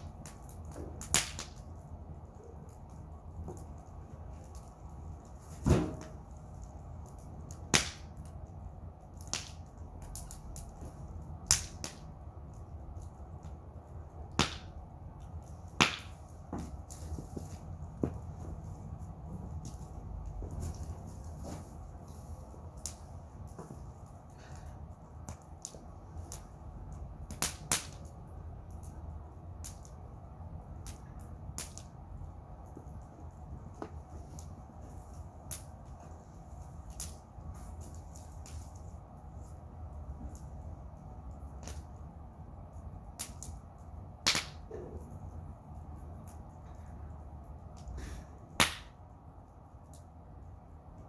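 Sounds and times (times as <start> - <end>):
low steady rumble: 0.0 - 51.0
wood fire crackling: 0.0 - 51.0
loud sharp pops: 44.2 - 44.7, 48.6 - 49.0.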